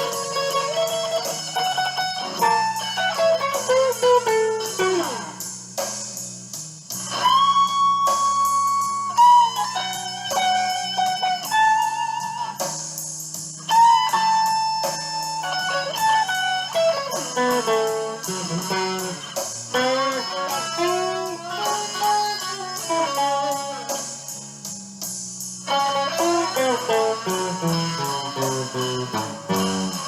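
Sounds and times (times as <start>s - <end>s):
electric guitar blues lead: 0.0s - 6.0s, 7.0s - 24.6s, 25.6s - 30.0s
backing track: 0.0s - 30.0s.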